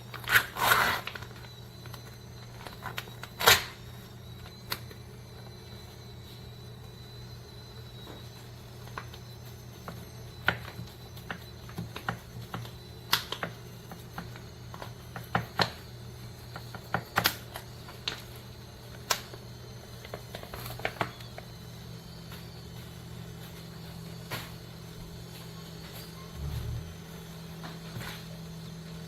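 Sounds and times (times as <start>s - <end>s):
low hum: 21.2s - 29.0s.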